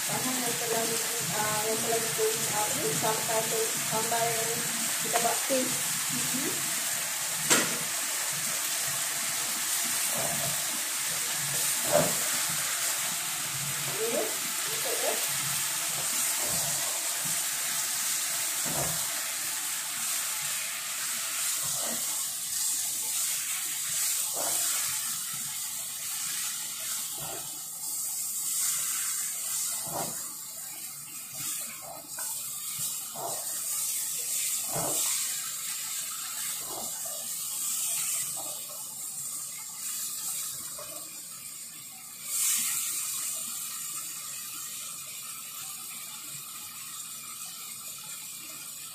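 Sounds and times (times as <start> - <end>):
chicken sizzling in a pot: 0.0 - 48.9
spatula scraping a pot: 11.6 - 12.5, 21.4 - 22.7, 36.2 - 37.3.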